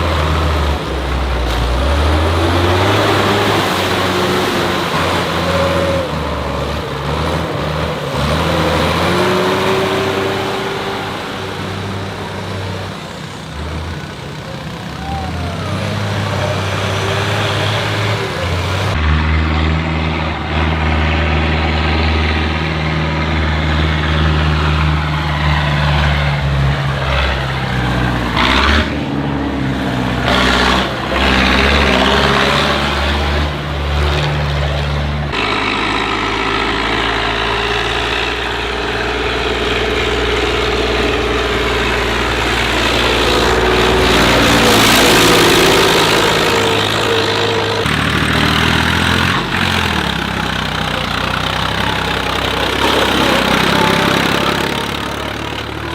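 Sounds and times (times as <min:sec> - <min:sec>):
tractor engines running: 0:00.0 - 0:55.9.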